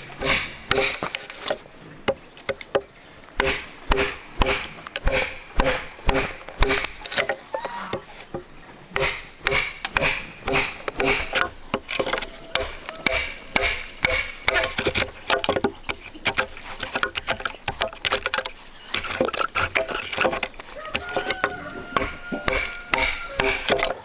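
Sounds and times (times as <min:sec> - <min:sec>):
sharp chopping knocks: 0:00.2 - 0:01.0, 0:02.1 - 0:07.3, 0:09.0 - 0:18.3, 0:21.0 - 0:24.0.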